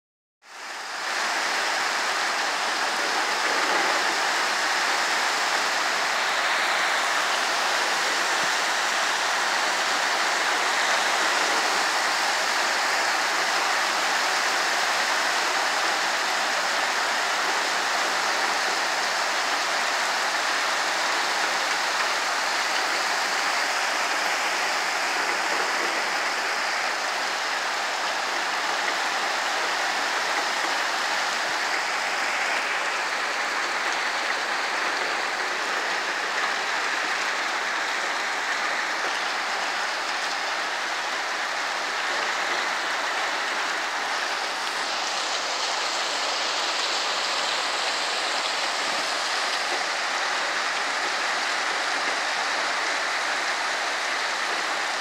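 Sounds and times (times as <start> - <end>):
heavy rain pouring: 0.4 - 55.0.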